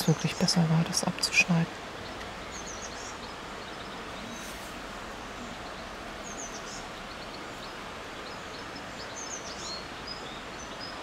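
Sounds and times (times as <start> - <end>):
outdoor background hiss: 0.0 - 11.0
small birds chirping: 0.0 - 11.0.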